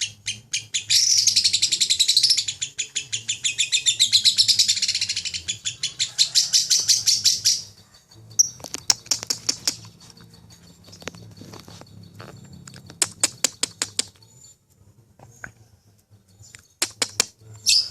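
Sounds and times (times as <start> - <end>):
lovebird shrill chatter: 0.0 - 14.6
bird chirps and clicks: 7.4 - 14.7, 15.4 - 17.9.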